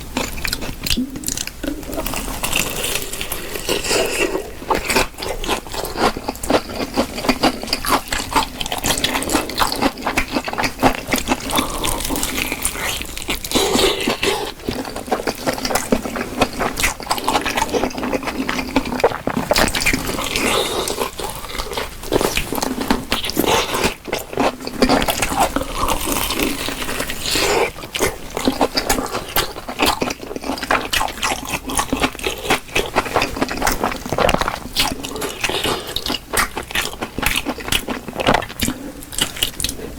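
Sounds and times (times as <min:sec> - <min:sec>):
person chewing fried chicken: 0:00.0 - 0:39.9.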